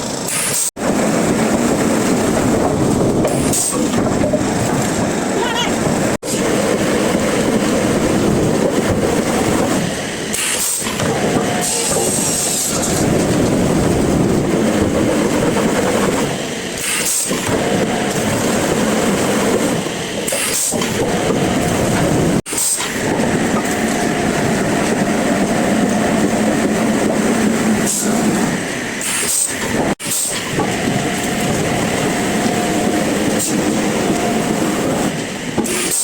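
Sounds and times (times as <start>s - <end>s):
sawmill machinery rumbling: 0.0s - 36.0s.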